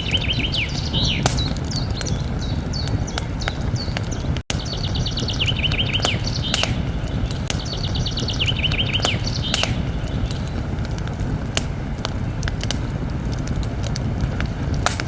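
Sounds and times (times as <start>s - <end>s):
songbird singing: 0.0s - 11.1s
campfire crackling and popping: 0.0s - 15.0s
steady low rumble: 0.0s - 15.0s.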